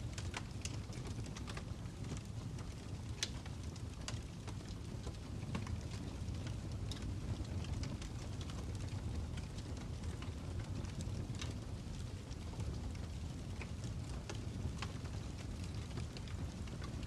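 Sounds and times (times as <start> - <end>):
fire crackling: 0.0 - 17.0
low rumble of flames: 0.0 - 17.0.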